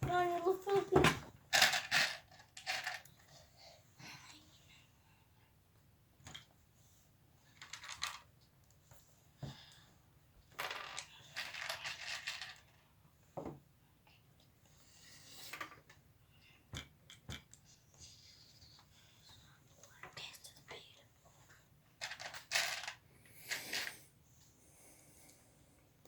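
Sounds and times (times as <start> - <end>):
plastic pieces clicking and rattling: 1.5 - 3.2, 10.6 - 12.7, 22.0 - 24.0.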